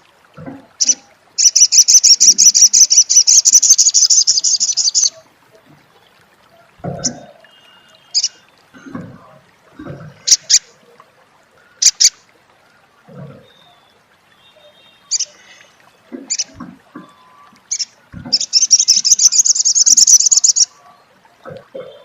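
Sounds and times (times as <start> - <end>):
sunbird calling: 0.8 - 5.2, 7.0 - 8.4, 13.4 - 15.7, 16.3 - 20.9
bird chattering trill: 8.2 - 8.4, 17.7 - 20.7.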